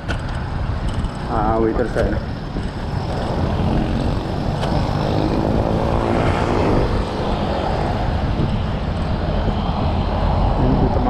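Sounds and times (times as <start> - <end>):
road traffic: 0.0 - 11.0
wind rushing over microphone: 0.0 - 11.0.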